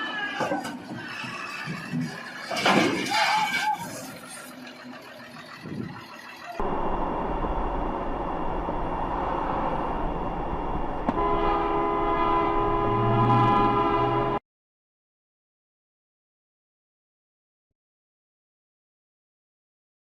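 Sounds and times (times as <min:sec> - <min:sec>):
steady rumble: 0:05.6 - 0:13.1
train horn chord: 0:11.1 - 0:14.4.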